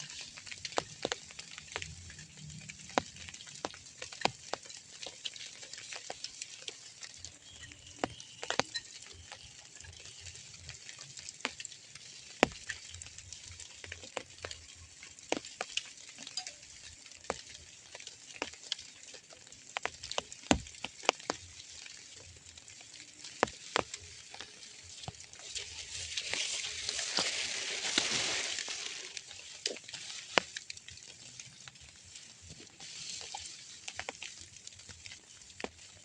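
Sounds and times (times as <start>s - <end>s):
light rain pattering: 0.0s - 36.0s
sharp drip taps: 2.9s - 25.4s.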